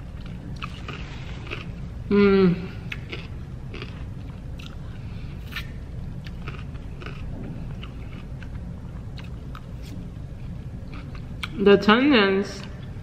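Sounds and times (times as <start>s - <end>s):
person chewing: 0.0s - 2.0s, 2.7s - 10.2s, 10.8s - 11.6s
low background hum: 0.0s - 13.0s.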